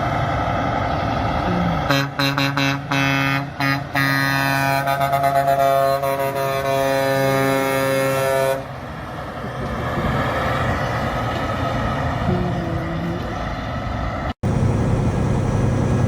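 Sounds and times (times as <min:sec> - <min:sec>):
truck rushing past: 0:00.0 - 0:16.0
truck air horn blast: 0:01.6 - 0:08.7.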